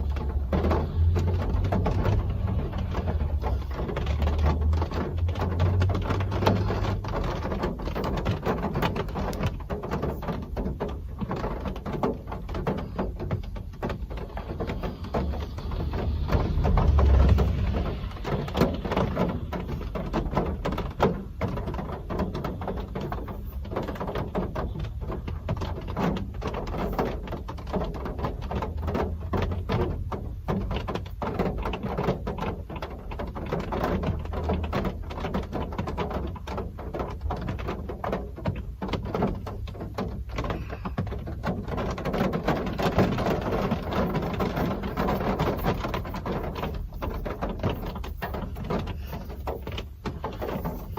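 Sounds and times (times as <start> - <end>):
rain falling: 0.0 - 50.9
low rumble: 15.0 - 18.6.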